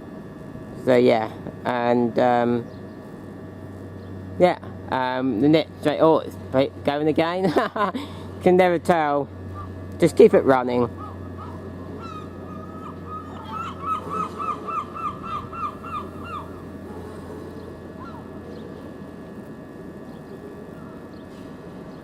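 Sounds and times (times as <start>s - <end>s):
steady low hum: 0.0s - 22.0s
bird calling repeated notes: 9.5s - 9.8s, 10.9s - 19.0s, 20.0s - 22.0s.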